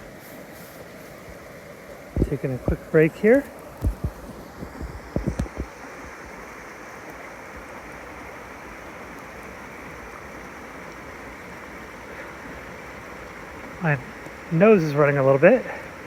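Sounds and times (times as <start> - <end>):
creek rushing: 0.0 - 16.0
low thumps: 2.1 - 3.0.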